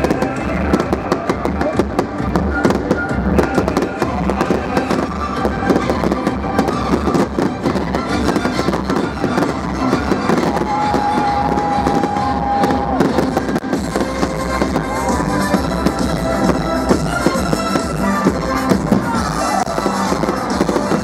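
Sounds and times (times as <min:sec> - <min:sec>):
fireworks bursting and crackling: 0:00.0 - 0:21.0
music playing: 0:00.0 - 0:21.0.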